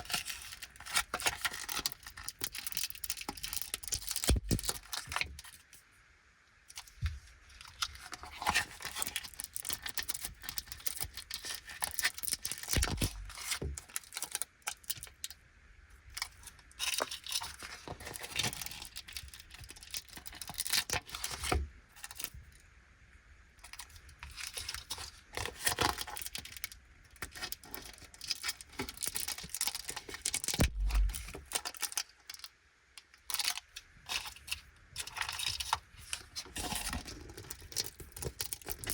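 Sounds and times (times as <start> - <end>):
plastic packaging crinkling: 0.0 - 5.6, 7.6 - 15.3, 23.7 - 32.5, 35.0 - 38.9.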